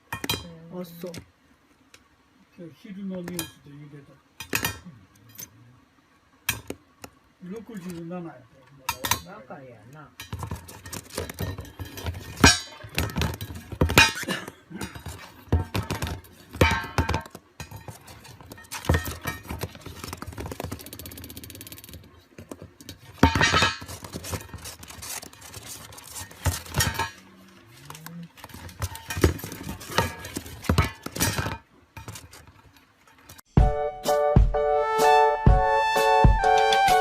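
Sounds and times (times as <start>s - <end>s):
hard objects knocking and clinking: 10.2s - 27.2s, 28.4s - 33.4s.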